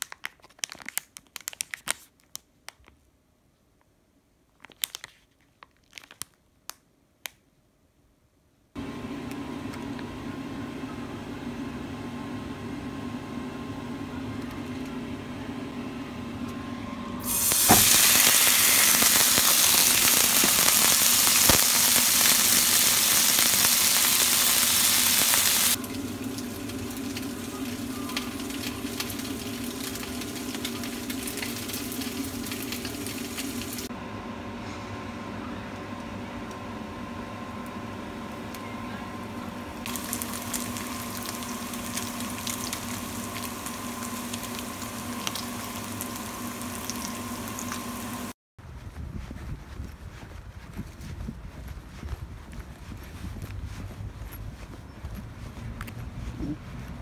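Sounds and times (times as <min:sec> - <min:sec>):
noodles sizzling in a frying pan: 0:17.2 - 0:33.9, 0:39.8 - 0:48.4.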